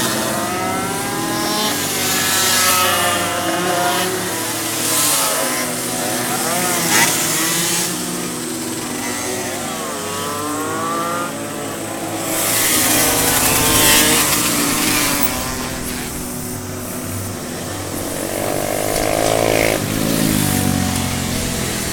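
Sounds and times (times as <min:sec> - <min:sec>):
car engines revving: 0:00.0 - 0:21.9
burst of rushing noise: 0:12.0 - 0:21.9.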